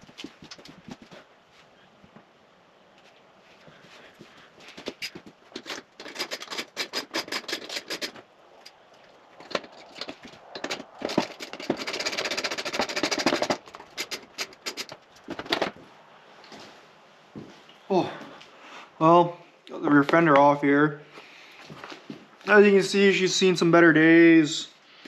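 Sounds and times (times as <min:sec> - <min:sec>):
fast dense clicking: 0:00.0 - 0:01.2, 0:04.7 - 0:15.8
hand tools clicking and knocking: 0:04.6 - 0:15.8.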